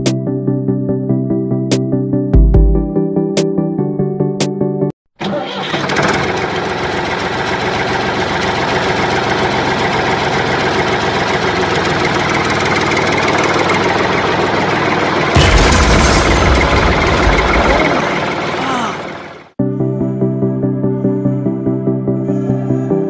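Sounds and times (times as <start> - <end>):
small motor running with rattle: 5.7 - 15.3.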